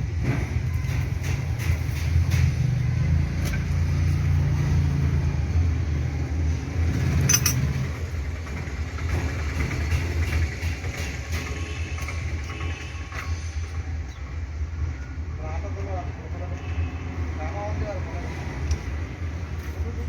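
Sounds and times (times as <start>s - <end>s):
high-pitched clink: 7.3s - 7.8s.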